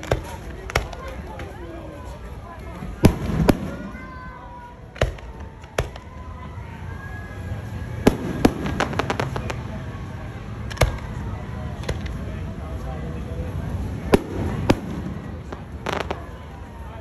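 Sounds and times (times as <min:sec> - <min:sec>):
fireworks bangs: 0:00.0 - 0:01.6, 0:02.9 - 0:06.2, 0:07.9 - 0:10.0, 0:10.6 - 0:11.2, 0:14.0 - 0:16.9
fireworks crackling: 0:00.0 - 0:06.3, 0:07.3 - 0:17.0.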